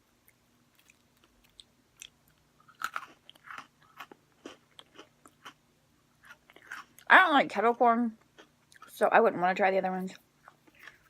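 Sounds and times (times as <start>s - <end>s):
cookies crunching while chewed: 0.2s - 7.1s, 10.3s - 11.0s.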